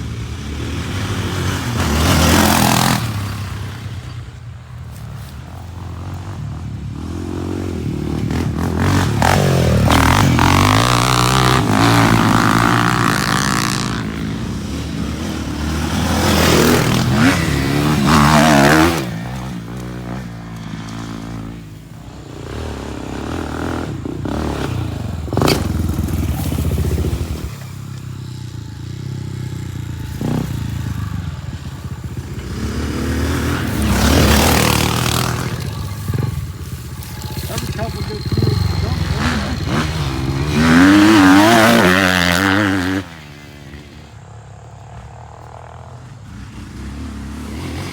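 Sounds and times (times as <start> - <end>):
off-road engines revving: 0.0 - 47.9.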